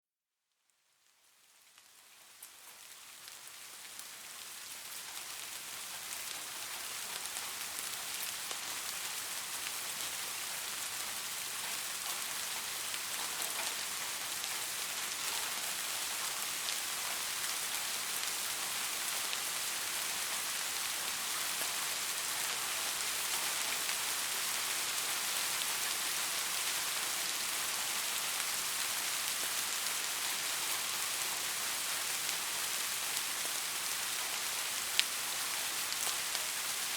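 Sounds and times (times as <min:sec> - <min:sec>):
steady rain: 0:00.8 - 0:36.9.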